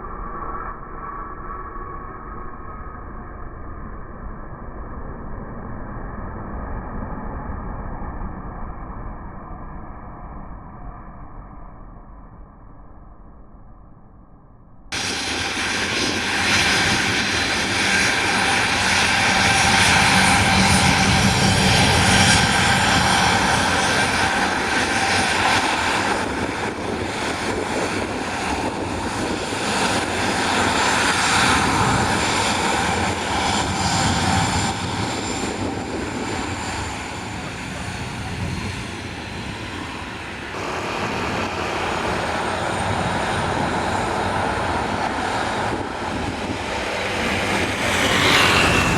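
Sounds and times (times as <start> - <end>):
airliner engines running: 14.9 - 48.9.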